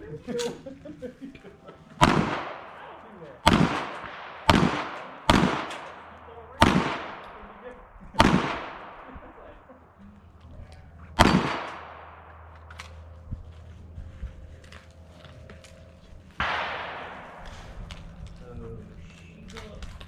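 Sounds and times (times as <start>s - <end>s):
echoing gunshots: 2.0s - 13.9s, 16.3s - 20.0s.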